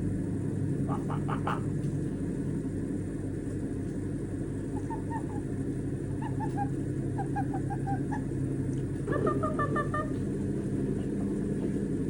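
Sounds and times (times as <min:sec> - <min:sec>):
steady low hum: 0:00.0 - 0:12.0
parrot chirping softly: 0:04.7 - 0:08.4.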